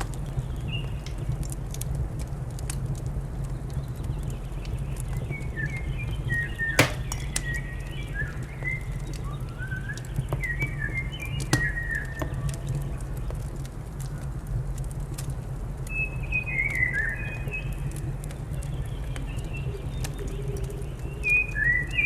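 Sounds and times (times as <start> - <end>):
wood fire crackling: 6.8 - 8.2, 8.8 - 16.8.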